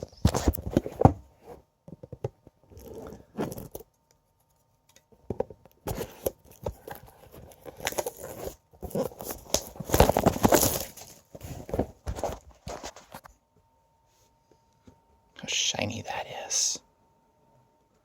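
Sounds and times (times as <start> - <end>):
packaging rustling and tearing: 5.9 - 13.1.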